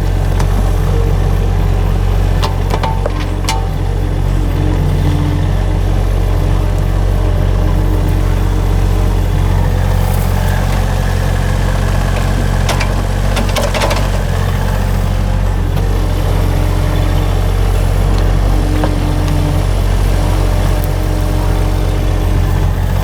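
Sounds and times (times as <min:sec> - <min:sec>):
small engine running: 0:00.0 - 0:23.0
sharp clicks and knocks: 0:02.2 - 0:04.8, 0:12.0 - 0:14.3.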